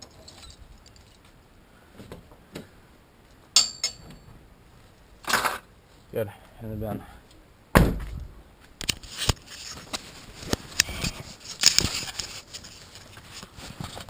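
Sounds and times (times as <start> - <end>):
tools clicking and tapping: 3.6 - 4.2.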